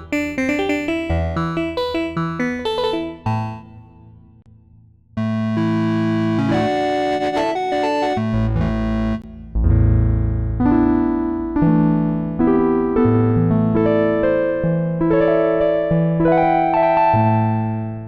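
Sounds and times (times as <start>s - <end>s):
electric piano synth chords: 0.0s - 4.3s, 5.2s - 9.2s
synth bass line: 0.0s - 4.3s, 5.2s - 11.0s.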